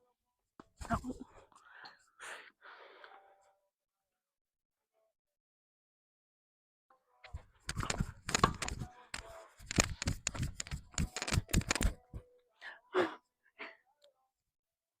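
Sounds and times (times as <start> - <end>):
sharp knocks and clicks: 7.7 - 12.2.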